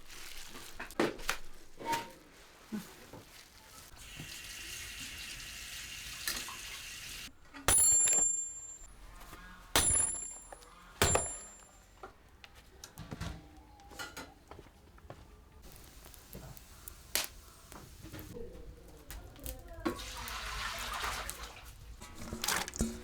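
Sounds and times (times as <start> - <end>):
water running: 3.9 - 7.4, 19.9 - 23.0
kitchenware clinking: 7.3 - 12.1.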